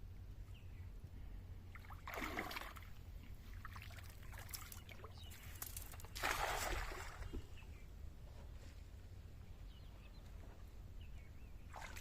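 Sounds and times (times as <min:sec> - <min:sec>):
low steady rumble: 0:00.0 - 0:11.8
water splashing: 0:01.7 - 0:07.4, 0:11.7 - 0:12.0.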